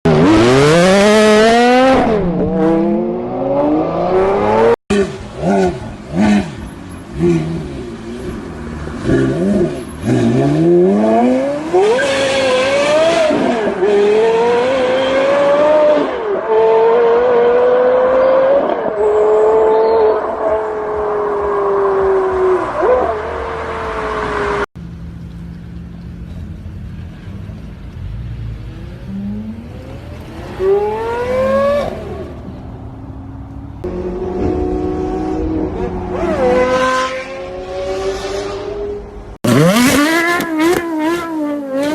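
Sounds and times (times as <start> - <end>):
car engine accelerating hard: 33.8 - 41.9.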